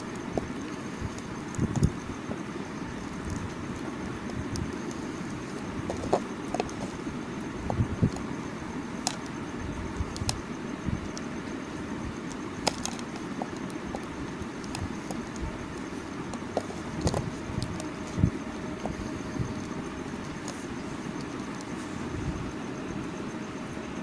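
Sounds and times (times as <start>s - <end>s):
background hiss and rumble: 0.0s - 24.0s
soap bars clicking and tapping: 3.1s - 7.0s, 12.2s - 21.9s.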